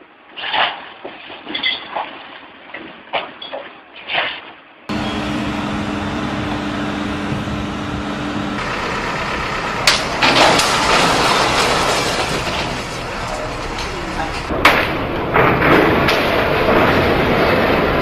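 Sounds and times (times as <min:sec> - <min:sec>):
heavy truck engine running: 0:04.9 - 0:18.0
loud rushing noise: 0:04.9 - 0:18.0.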